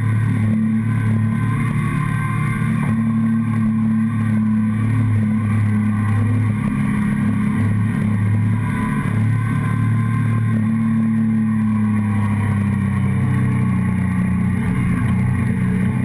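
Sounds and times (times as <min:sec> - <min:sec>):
motorcycle engine cruising: 0:00.0 - 0:16.0.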